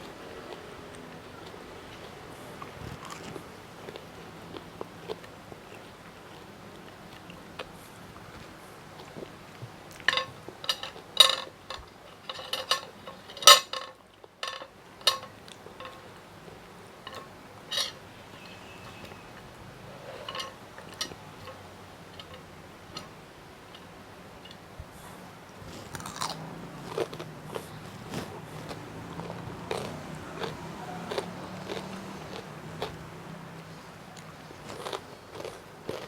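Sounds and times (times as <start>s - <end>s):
chewing crunchy food: 0.0s - 13.4s, 23.7s - 36.0s.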